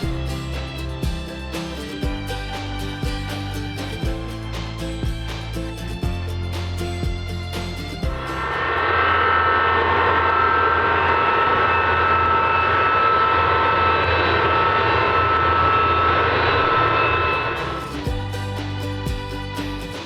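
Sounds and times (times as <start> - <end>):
music: 0.0 - 9.0, 17.2 - 20.0
aircraft engine whining roar: 7.2 - 19.0.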